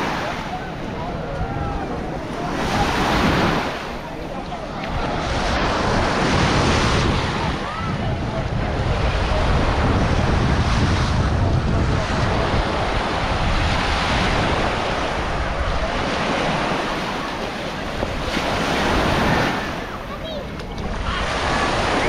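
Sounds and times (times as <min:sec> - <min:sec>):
small waves washing on beach: 0:00.0 - 0:22.0
wind buffeting microphone: 0:00.0 - 0:22.0.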